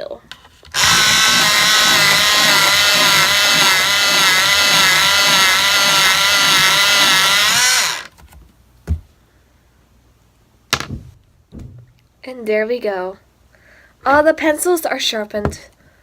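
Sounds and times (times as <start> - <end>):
electric pencil sharpener grinding: 0.7 - 8.1.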